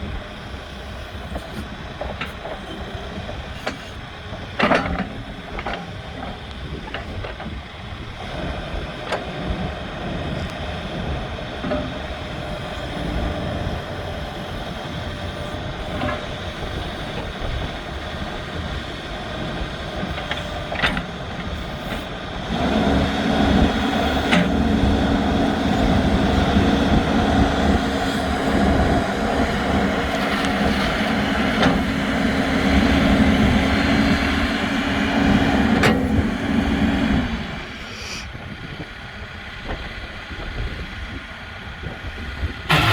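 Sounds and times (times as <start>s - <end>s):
backhoe diesel engine running: 0.0s - 42.9s.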